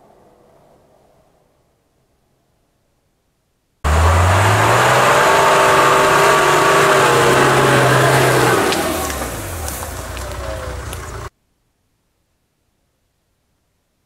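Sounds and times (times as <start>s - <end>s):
off-road vehicle engine under load: 3.8s - 11.3s.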